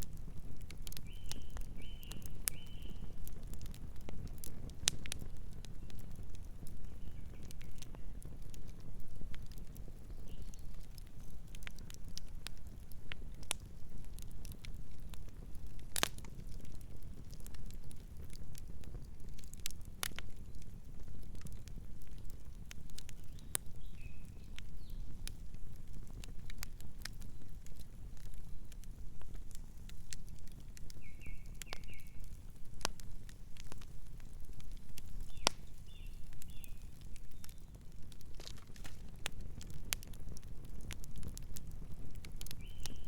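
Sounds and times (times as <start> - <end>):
campfire crackling and popping: 0.0 - 43.0
faint bird chirps: 1.0 - 3.1, 31.0 - 32.2, 42.6 - 43.0.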